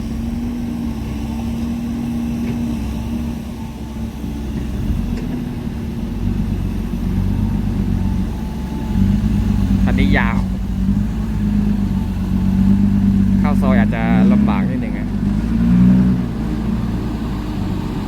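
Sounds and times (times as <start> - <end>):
truck engine droning: 0.0 - 18.0.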